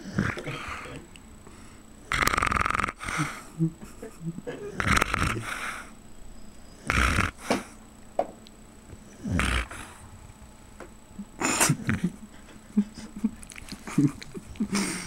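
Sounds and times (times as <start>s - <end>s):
dog snoring: 0.0s - 1.0s, 2.1s - 3.5s, 4.6s - 5.9s, 6.8s - 7.8s, 9.0s - 10.0s.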